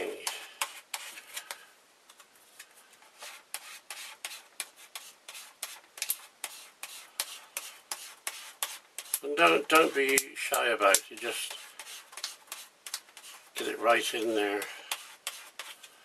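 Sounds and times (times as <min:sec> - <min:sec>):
plastic card scraping glue: 0:10.9 - 0:13.6.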